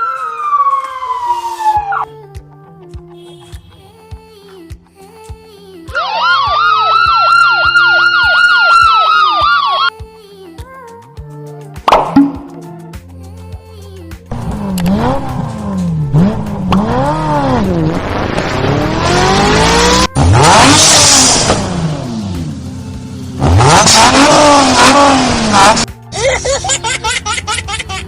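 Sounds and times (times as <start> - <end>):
background music: 0.0 - 28.0
car engine revving: 14.3 - 25.9.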